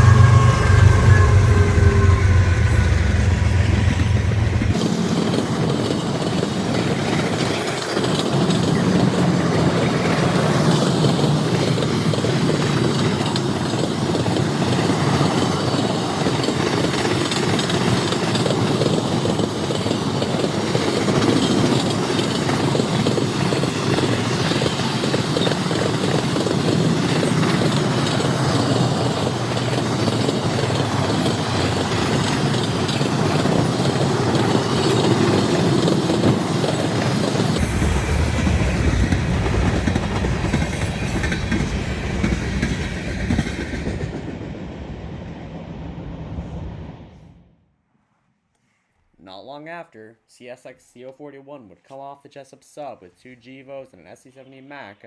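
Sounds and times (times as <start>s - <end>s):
locomotive engine rumble: 0.0s - 6.4s
freight cars rolling on rails: 0.0s - 46.9s.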